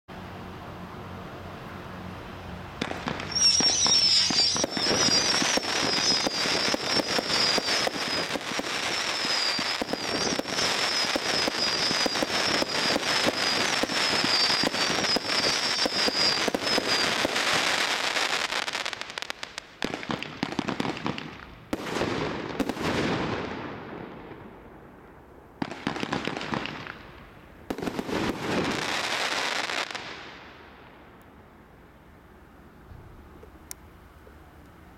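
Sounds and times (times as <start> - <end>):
firework barrage shots: 2.8 - 24.8, 25.6 - 30.6
shrill wavering whistle: 3.2 - 17.2.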